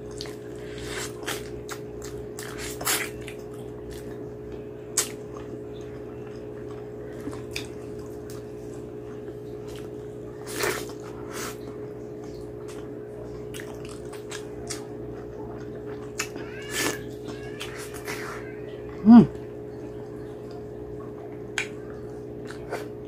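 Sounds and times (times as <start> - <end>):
wet chewing and lip-smacking: 0.0 - 4.2, 4.9 - 12.9, 13.5 - 18.3, 20.4 - 22.9
steady low hum: 0.0 - 23.0.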